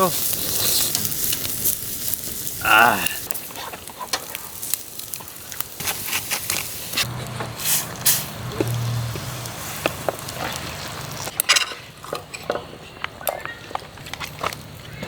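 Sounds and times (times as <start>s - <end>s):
food sizzling on a grill: 0.0s - 11.4s
fire crackles and pops: 0.0s - 15.0s.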